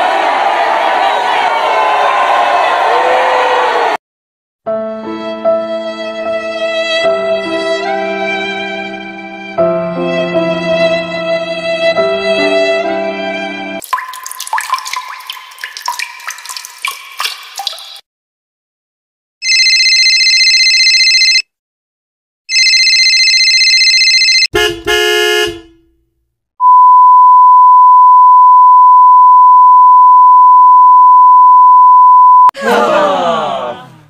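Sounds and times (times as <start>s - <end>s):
horn-like honks: 24.5s - 25.9s
steady censor bleep tone: 26.6s - 32.6s.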